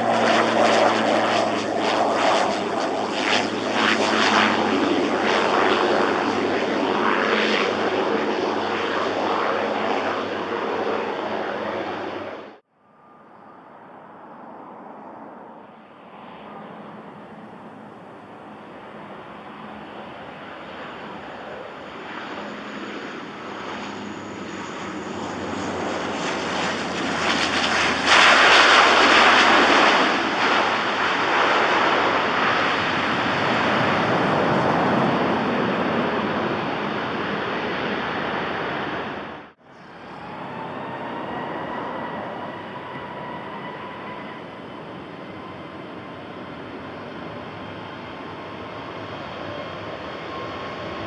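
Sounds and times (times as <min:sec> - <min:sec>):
jet engines whining: 0:00.0 - 0:51.0
turboprop aircraft approaching: 0:00.0 - 0:51.0.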